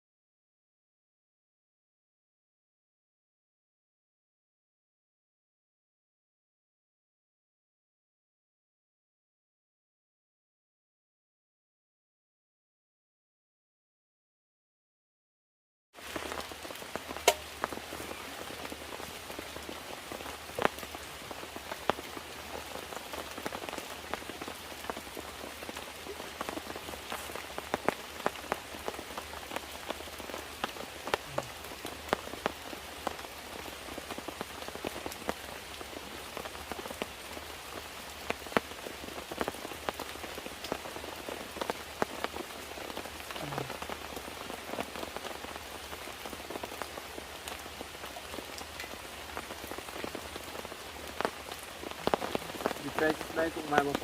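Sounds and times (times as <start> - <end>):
rain hissing: 16.0 - 54.0
raindrops tapping: 16.0 - 54.0.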